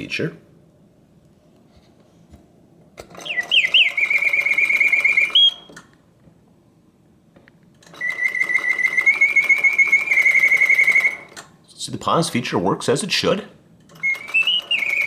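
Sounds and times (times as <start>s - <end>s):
mechanical bird whistle warbling: 3.2s - 5.8s, 8.0s - 11.3s, 14.0s - 15.0s.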